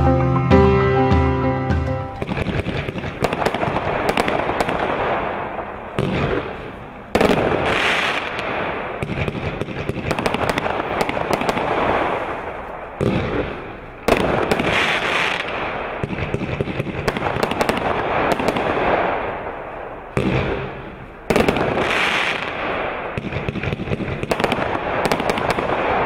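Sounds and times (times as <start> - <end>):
fireworks launching and bursting: 2.1 - 26.0.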